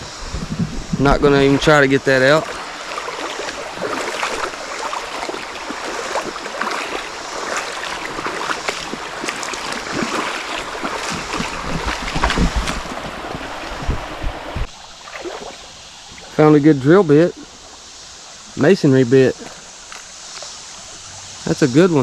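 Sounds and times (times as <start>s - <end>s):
low thumps: 0.0s - 1.8s, 9.8s - 14.7s
creek water rushing: 0.0s - 22.0s
splashes and knocks: 1.6s - 15.6s.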